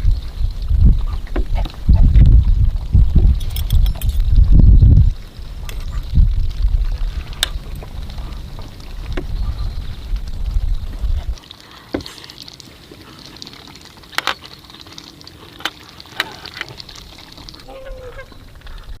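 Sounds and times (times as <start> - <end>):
wind rumbling on microphone: 0.0 - 11.4, 16.5 - 19.0
sharp clicks and knocks: 3.4 - 4.3.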